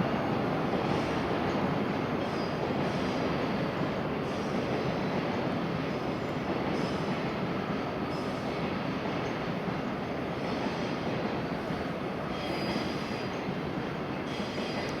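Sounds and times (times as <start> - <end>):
train noise at platform: 0.0 - 15.0
faint high squeals: 12.3 - 13.5, 14.1 - 15.0.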